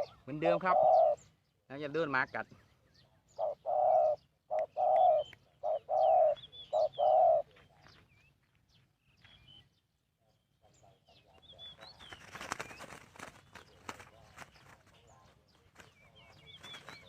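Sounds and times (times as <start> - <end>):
dove cooing: 0.0 - 1.3, 3.1 - 7.8
small birds chirping: 0.0 - 17.0.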